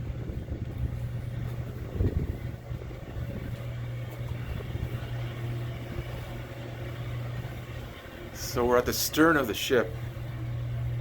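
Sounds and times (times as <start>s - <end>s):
low rumble: 0.0s - 8.6s
low mechanical hum: 0.0s - 11.0s.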